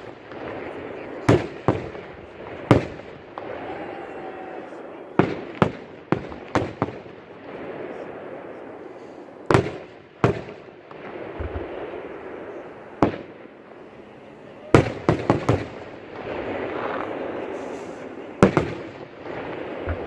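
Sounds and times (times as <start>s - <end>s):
fireworks bursting: 0.0s - 20.0s
steady background noise: 0.0s - 20.0s.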